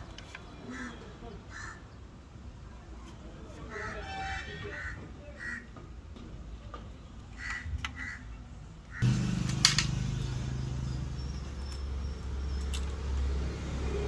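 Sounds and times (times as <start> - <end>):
mechanical hum: 9.0 - 14.0.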